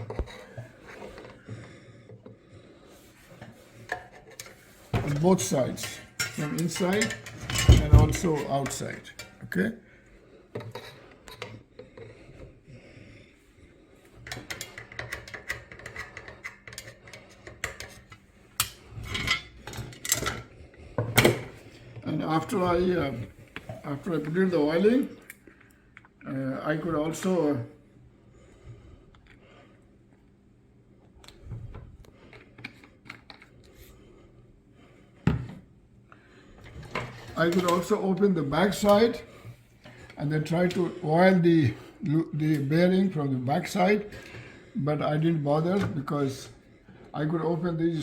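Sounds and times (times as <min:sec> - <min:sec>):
fan parts clicking and rattling: 0:03.4 - 0:09.5, 0:14.2 - 0:25.0.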